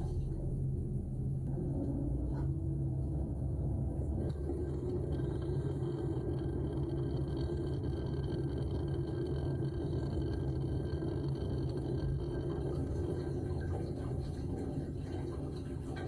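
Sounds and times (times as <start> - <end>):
muffled dishwasher rumble: 0.0 - 16.0.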